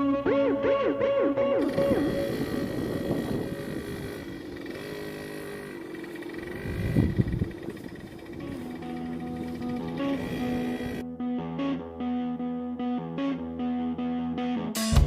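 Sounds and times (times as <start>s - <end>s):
two-stroke motorbike engine: 1.6s - 11.0s.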